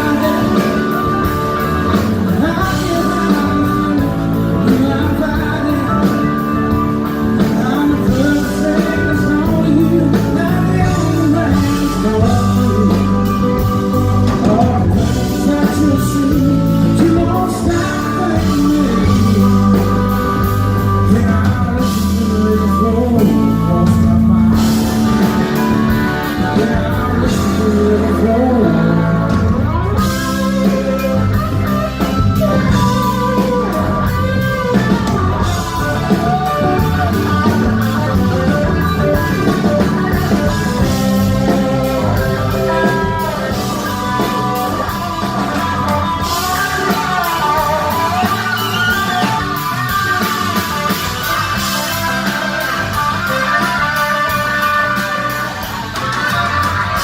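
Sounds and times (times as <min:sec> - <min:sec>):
blues-rock band playing live: 0:00.0 - 0:57.0
electric guitar lines bending: 0:00.0 - 0:57.0.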